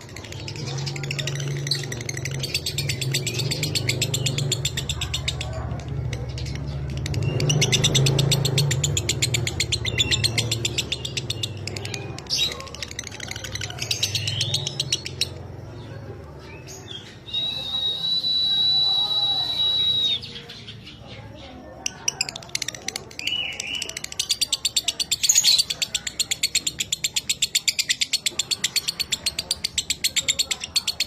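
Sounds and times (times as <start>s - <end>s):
lovebird chattering in rapid trills: 0.0s - 15.6s, 21.7s - 31.0s.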